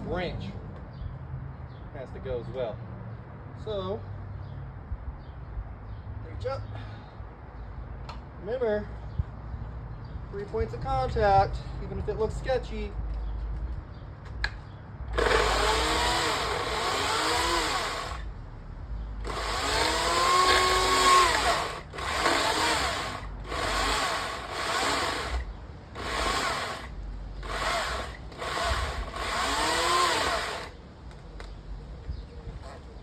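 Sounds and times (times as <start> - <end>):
electric chainsaw cutting branch: 15.1 - 18.3, 19.2 - 30.8.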